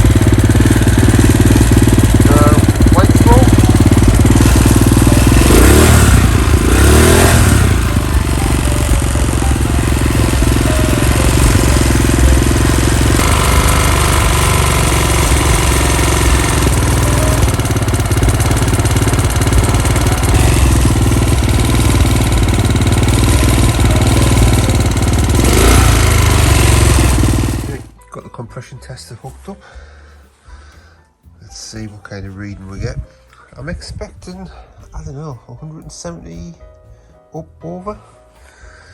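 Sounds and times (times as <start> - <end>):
quad bike engine revving: 0.0 - 28.0.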